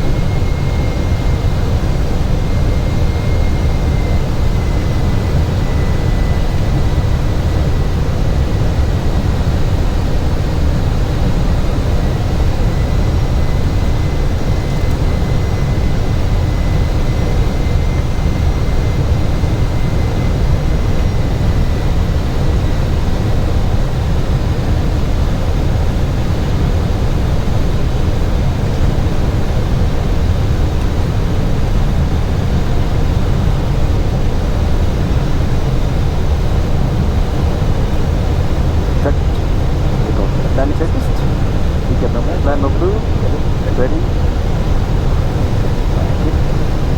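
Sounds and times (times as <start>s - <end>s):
airflow and engine rumble: 0.0s - 46.9s.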